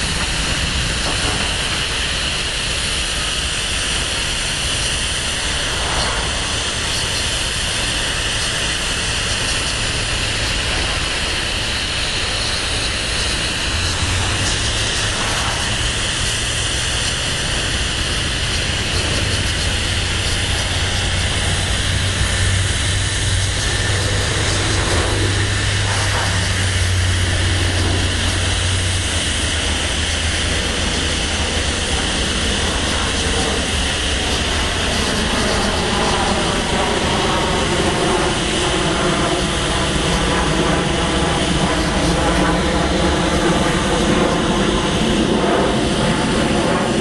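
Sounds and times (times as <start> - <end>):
diesel locomotive engine drone: 0.0 - 47.0
freight cars rumbling on rails: 0.0 - 47.0.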